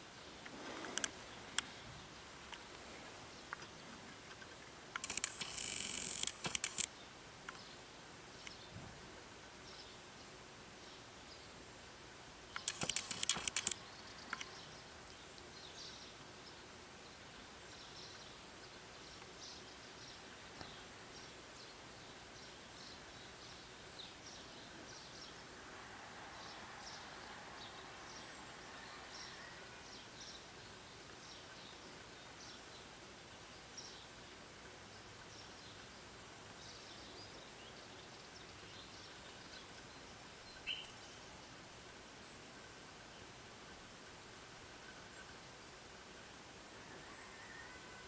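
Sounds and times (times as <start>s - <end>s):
loud rapid clicking: 5.0s - 6.9s, 12.6s - 13.8s
faint bird chirps: 36.6s - 41.4s.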